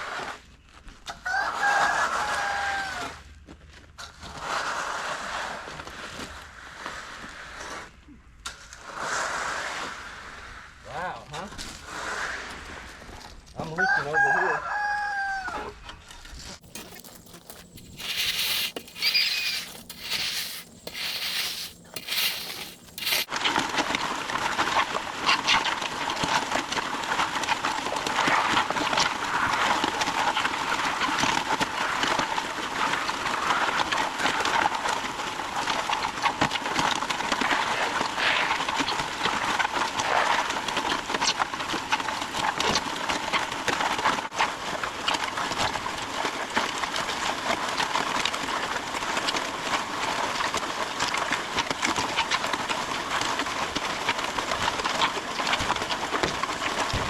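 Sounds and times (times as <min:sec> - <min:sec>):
rooster crowing: 0:01.2 - 0:03.2, 0:13.7 - 0:15.8.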